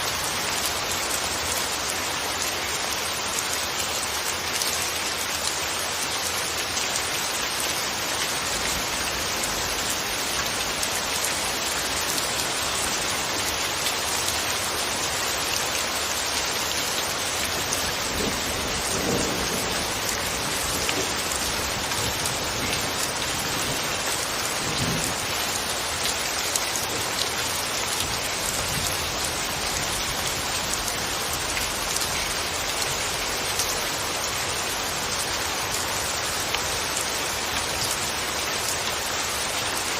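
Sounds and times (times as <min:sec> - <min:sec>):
steady rain falling: 0:00.0 - 0:39.9
low thunder rumble: 0:17.9 - 0:23.9.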